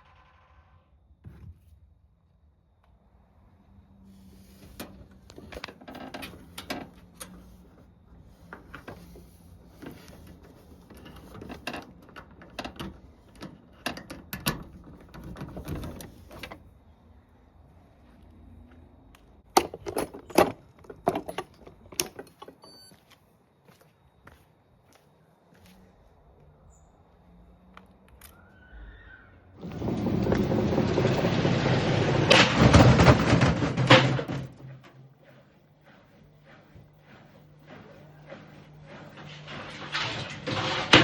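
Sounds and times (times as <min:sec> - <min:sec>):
washing machine rattling and clattering: 0:29.6 - 0:35.0, 0:38.2 - 0:41.0
loud metallic clanks: 0:39.1 - 0:41.0.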